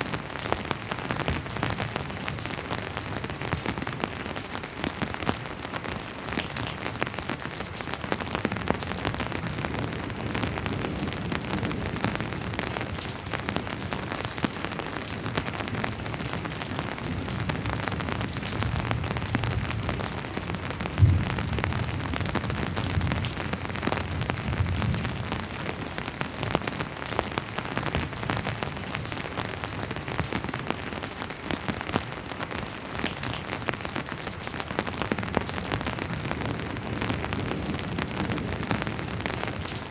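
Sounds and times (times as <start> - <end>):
steady rain falling: 0.0 - 39.9
distant thunder rumble: 18.6 - 25.2.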